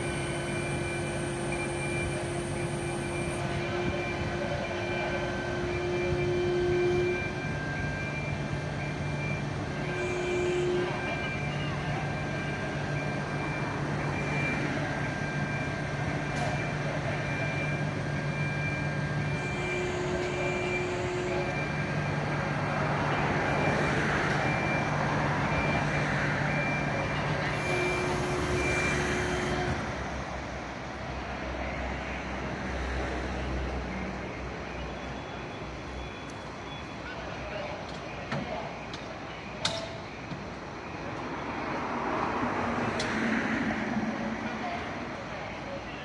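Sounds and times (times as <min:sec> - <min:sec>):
repeating warning beep: 0:00.0 - 0:10.4.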